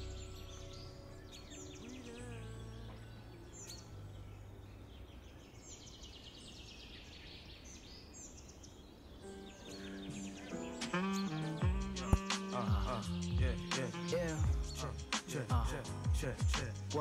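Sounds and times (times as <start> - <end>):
faint birds chirping: 0.0 - 17.0
song held notes: 9.2 - 17.0.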